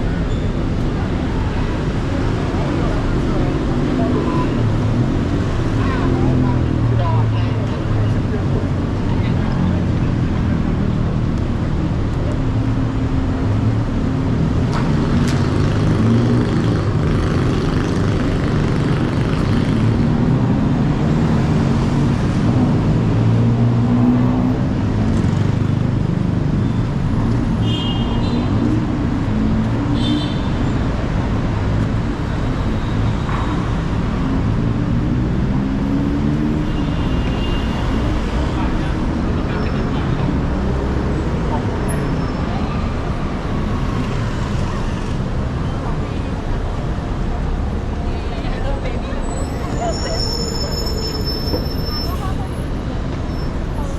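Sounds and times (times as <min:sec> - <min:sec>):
traffic rumble: 0:00.0 - 0:53.9.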